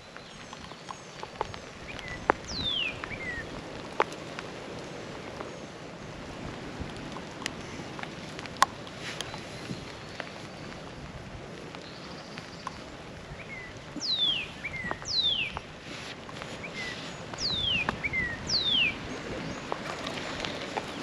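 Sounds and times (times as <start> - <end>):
light rain pattering: 0.0 - 21.0
songbird whistling: 1.9 - 3.5, 13.4 - 19.6.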